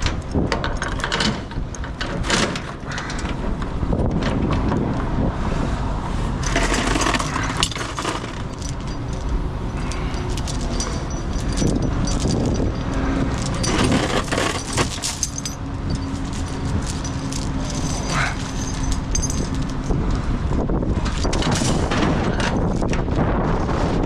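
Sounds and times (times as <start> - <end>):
wind buffeting microphone: 0.0 - 24.0
metal chains clinking: 6.4 - 20.1, 21.0 - 22.8.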